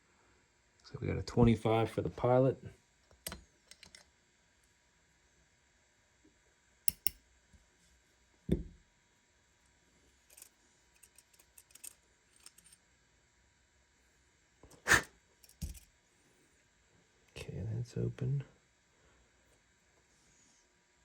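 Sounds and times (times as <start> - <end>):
small metal tools clicking: 6.9 - 7.2, 10.3 - 12.8, 15.4 - 15.9
knock: 8.5 - 8.8.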